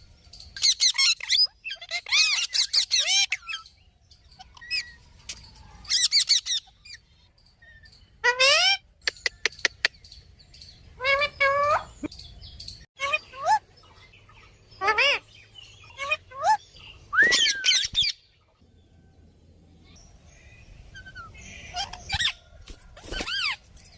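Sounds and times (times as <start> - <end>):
cockatiel chirping and whistling: 17.2 - 18.1.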